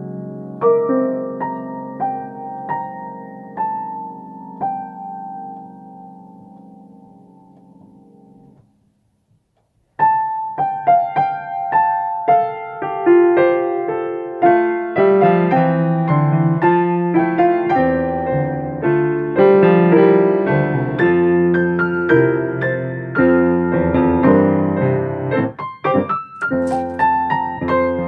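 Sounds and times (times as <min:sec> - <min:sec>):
piano melody: 0:00.0 - 0:08.8, 0:10.0 - 0:28.0
piano chords and bass line: 0:00.0 - 0:28.0.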